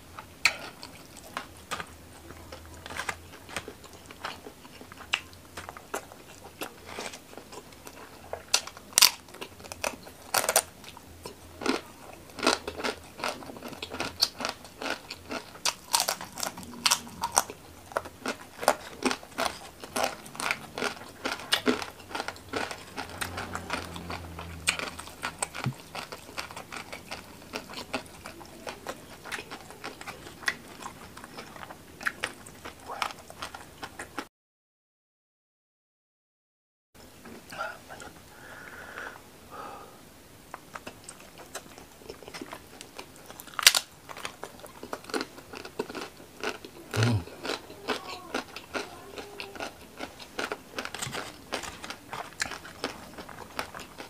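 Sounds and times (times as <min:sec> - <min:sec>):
wet chewing: 0:00.2 - 0:34.2, 0:40.5 - 0:54.0
crisp crunches: 0:43.2 - 0:54.0.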